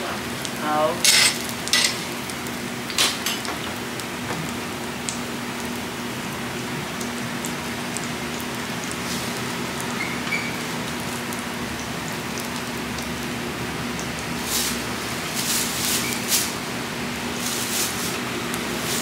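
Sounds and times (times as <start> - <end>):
pancakes sizzling on a griddle: 0.0 - 19.0
oil spitting crackles: 6.8 - 19.0.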